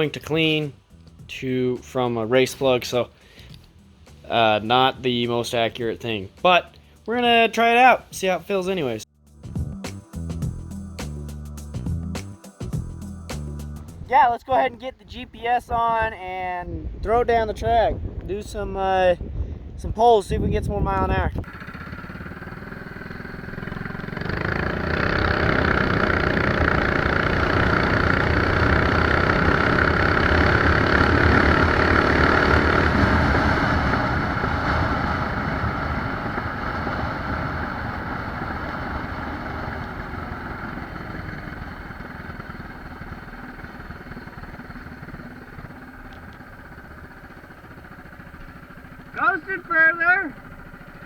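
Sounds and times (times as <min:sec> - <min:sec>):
small motorbike engine revving: 0:21.3 - 0:51.0.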